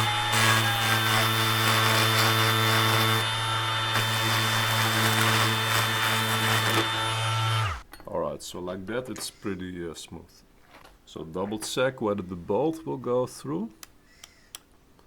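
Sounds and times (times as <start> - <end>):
small power tool grinding metal: 0.0 - 7.8.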